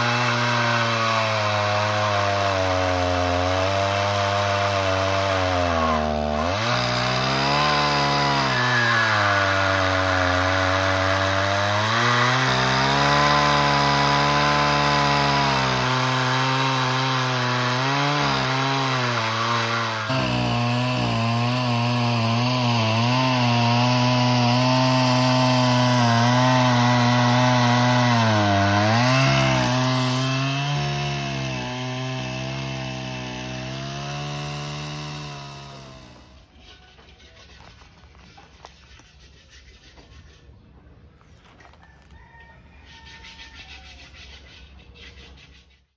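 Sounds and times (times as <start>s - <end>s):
sawmill engine cutting log: 0.0s - 36.5s.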